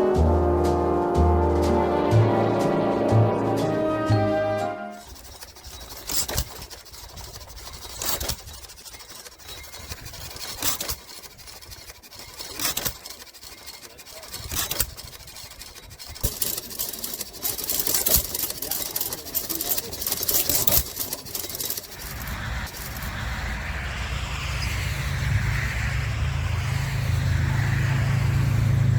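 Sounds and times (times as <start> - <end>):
music: 0.0 - 5.0
engine idling with bursts: 0.0 - 23.9, 26.0 - 28.9.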